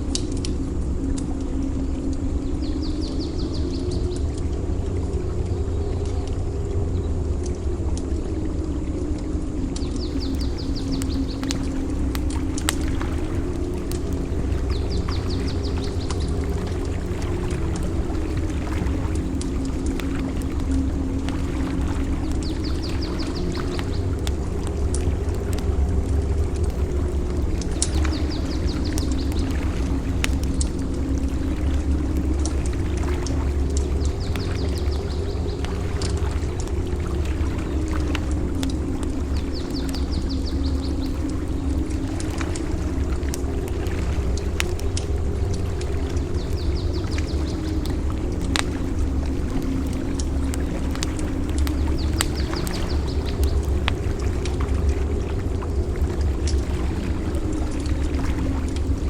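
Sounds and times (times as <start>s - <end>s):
bird chirping: 10.0s - 11.8s
waves on the beach: 10.0s - 59.0s
campfire crackling and popping: 10.1s - 59.0s
surf rumbling: 10.1s - 59.0s.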